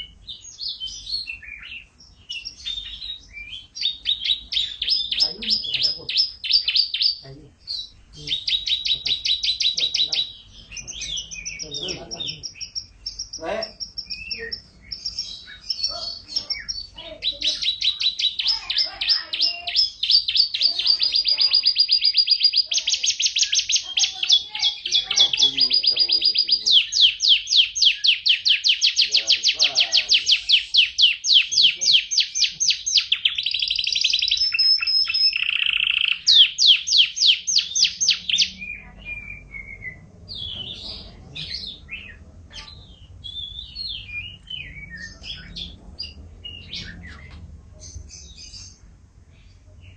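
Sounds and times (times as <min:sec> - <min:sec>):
canary singing trills: 0:00.0 - 0:49.9.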